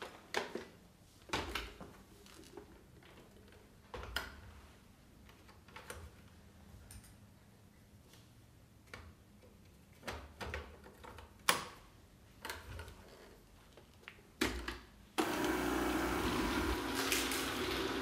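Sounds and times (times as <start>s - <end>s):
sweeper motor whirring: 15.2s - 18.0s.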